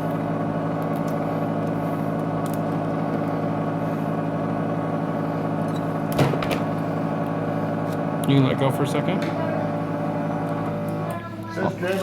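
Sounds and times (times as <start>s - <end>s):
vacuum pump hum: 0.0s - 12.0s.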